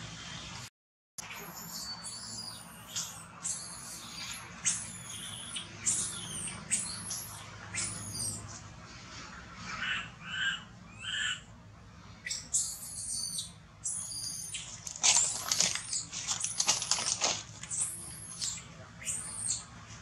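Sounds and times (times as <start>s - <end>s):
bird chirps: 1.2s - 8.5s, 9.8s - 11.5s, 12.2s - 19.7s
bird whistling: 1.4s - 8.4s, 12.2s - 19.7s.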